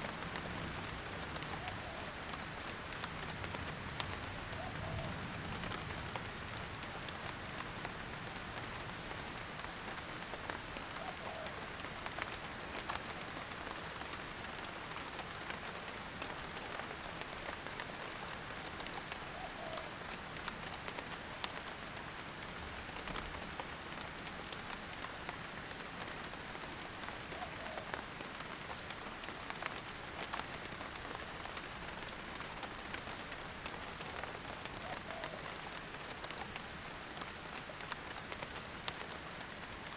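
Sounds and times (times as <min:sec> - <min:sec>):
raindrops ticking close by: 0:00.0 - 0:39.9
steady rain hiss: 0:00.0 - 0:39.9.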